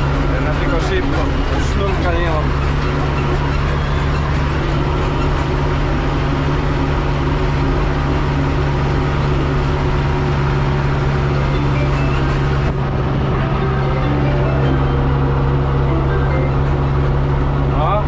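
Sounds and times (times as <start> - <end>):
diesel engine humming in cab: 0.0 - 18.0.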